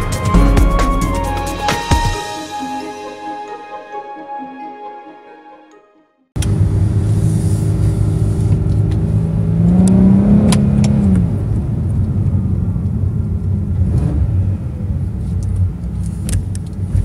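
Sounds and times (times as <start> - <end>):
car engine accelerating: 6.4 - 16.1.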